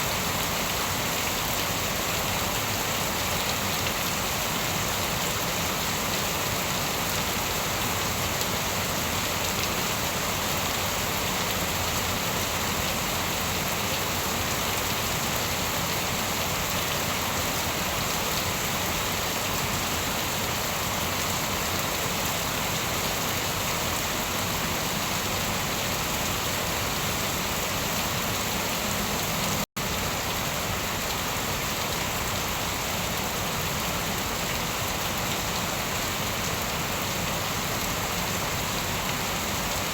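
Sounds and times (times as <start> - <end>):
rain pattering on surfaces: 0.1 - 39.9.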